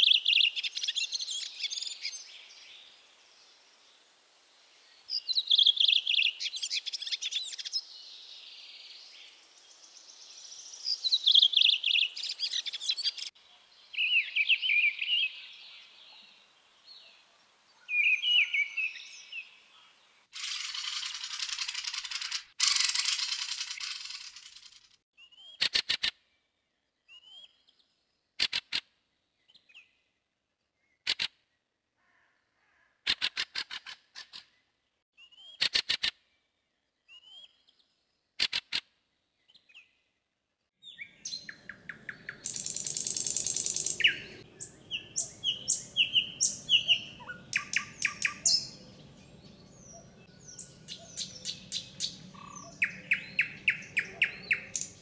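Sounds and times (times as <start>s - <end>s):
birds chirping and calling: 0.0s - 2.9s, 5.0s - 9.1s, 10.6s - 16.3s, 17.8s - 24.7s, 40.8s - 55.0s
bird rattling bursts: 20.4s - 25.0s.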